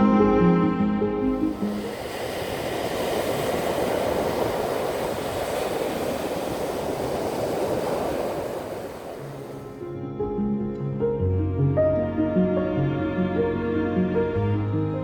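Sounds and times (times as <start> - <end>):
sea waves on stony beach: 1.4 - 9.8.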